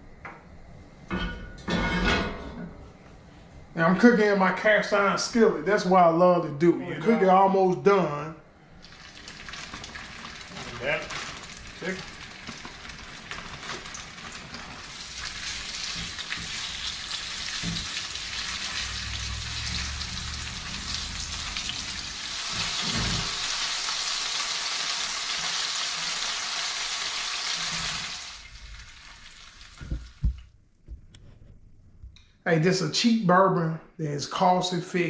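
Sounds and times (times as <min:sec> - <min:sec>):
chicken sizzling in a skillet: 0:08.8 - 0:30.3
low knocks: 0:29.8 - 0:31.2.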